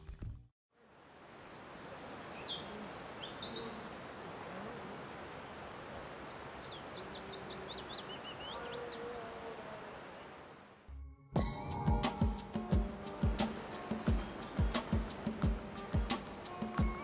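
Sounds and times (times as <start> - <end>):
steady background hiss: 0.8 - 10.8, 11.5 - 17.0
small bird calling: 12.2 - 17.0.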